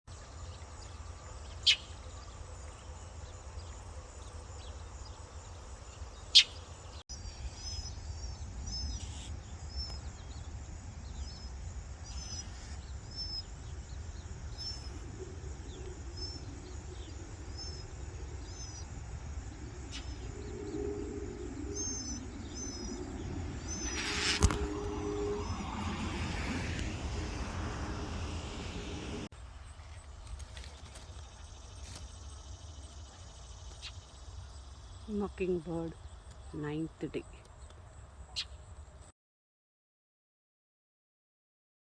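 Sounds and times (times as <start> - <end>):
bird chirps: 0.4 - 2.8, 3.5 - 38.9
low engine hum: 7.3 - 33.8
low rumble: 12.8 - 29.4.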